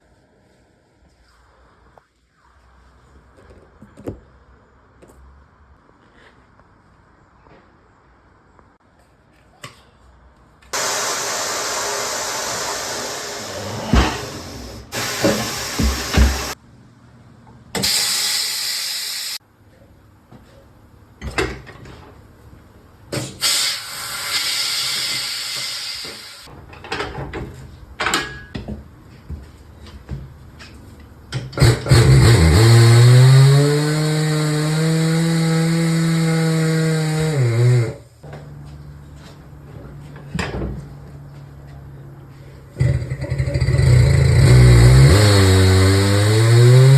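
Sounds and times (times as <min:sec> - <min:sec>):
compressed air hissing bursts: 0:10.8 - 0:16.6, 0:17.8 - 0:19.4, 0:23.4 - 0:26.5
electric machine motor: 0:42.8 - 0:46.9.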